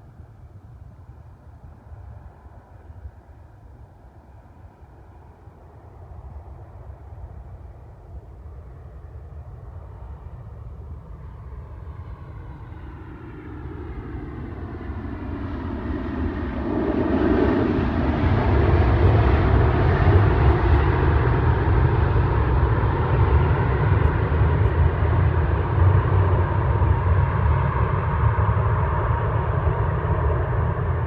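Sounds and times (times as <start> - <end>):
jet engines roaring: 12.9 - 31.0
whine falling in pitch: 19.0 - 20.8.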